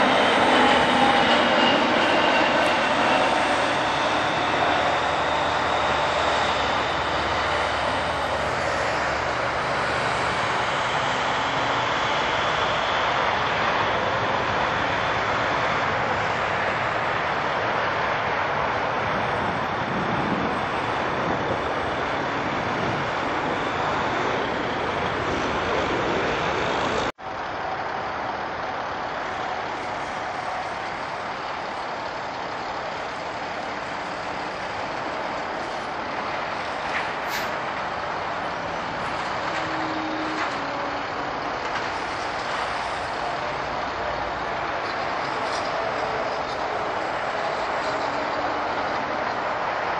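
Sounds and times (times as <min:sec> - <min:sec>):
jet airliner engines running: 0:00.0 - 0:49.9.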